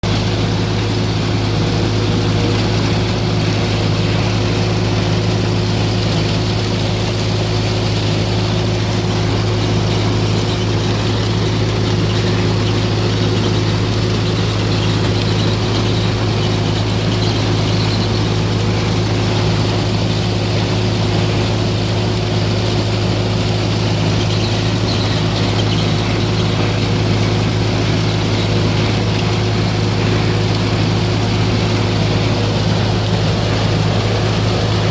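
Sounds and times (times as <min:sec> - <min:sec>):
tractor engine hum: 0:00.0 - 0:34.9.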